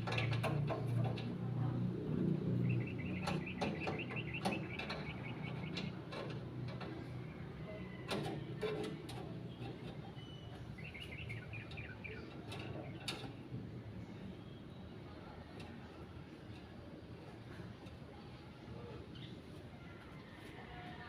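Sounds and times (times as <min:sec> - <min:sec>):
sharp knocks and clanks: 0:00.0 - 0:01.6, 0:02.6 - 0:07.3.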